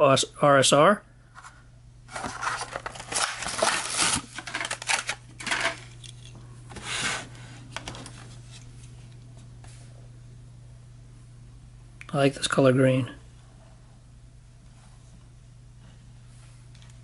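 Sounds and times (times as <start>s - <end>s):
steady low hum: 0.0s - 17.0s
plastic packaging crinkling: 2.1s - 6.3s.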